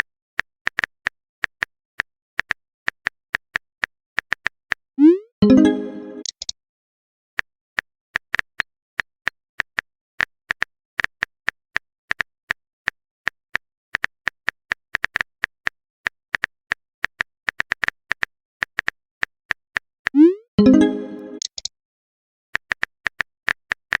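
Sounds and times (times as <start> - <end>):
phone keyboard typing clicks: 20.1 - 21.7.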